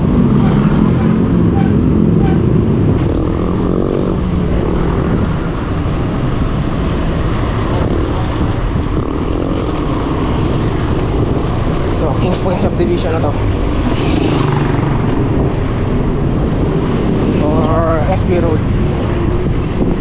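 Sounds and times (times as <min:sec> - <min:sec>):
passing engine rising in pitch: 0:00.0 - 0:05.4
road traffic rushing: 0:00.0 - 0:20.0.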